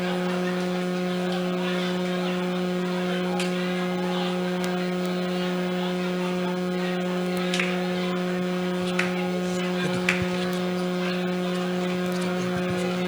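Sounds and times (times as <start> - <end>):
electrical hum: 0.0 - 13.0
faint ticks: 8.8 - 10.8.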